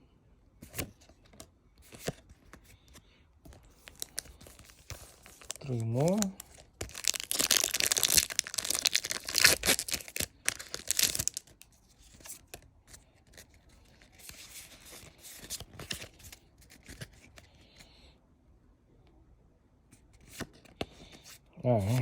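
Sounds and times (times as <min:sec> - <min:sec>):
cards being handled: 0:00.6 - 0:17.5, 0:20.0 - 0:22.0
foil wrapper tearing: 0:03.8 - 0:11.6.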